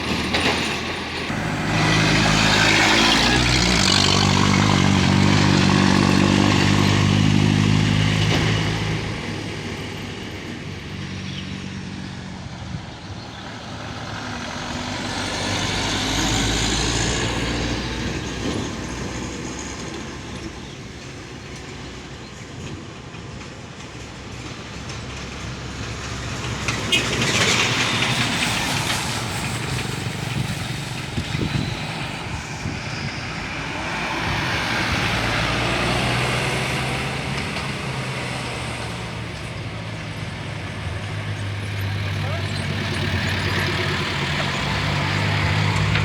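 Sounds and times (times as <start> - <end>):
rapid clacking of train wheels: 0.0 - 3.9, 18.0 - 33.6
road vehicles passing: 0.0 - 46.0
train passing: 0.0 - 46.0.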